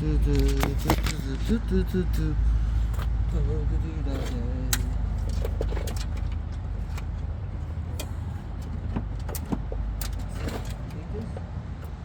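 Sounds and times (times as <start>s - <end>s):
steady low rumble: 0.0s - 10.4s
hands handling plastic parts: 0.2s - 1.4s.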